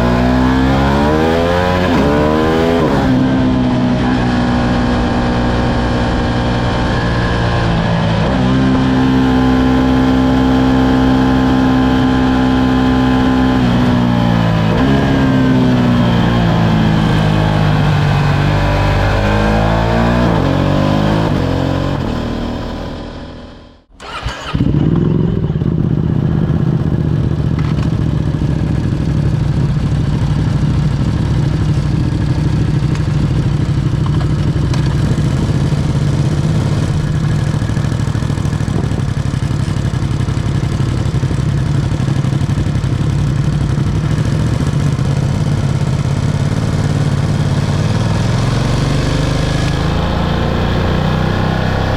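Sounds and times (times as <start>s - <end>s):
engine revs falling: 17.7s - 25.6s
motorcycle engine idling: 23.1s - 47.6s.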